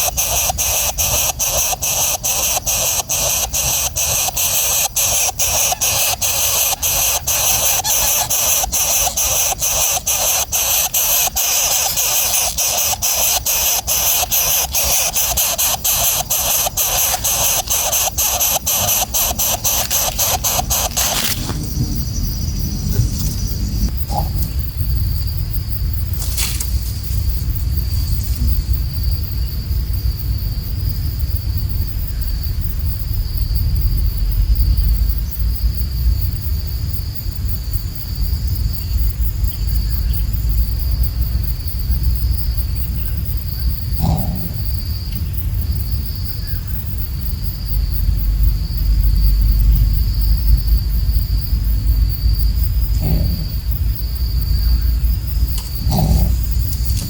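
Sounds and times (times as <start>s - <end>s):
high-pitched insect drone: 0.0s - 35.6s, 36.2s - 57.0s
wind rumble on microphone: 21.4s - 26.1s.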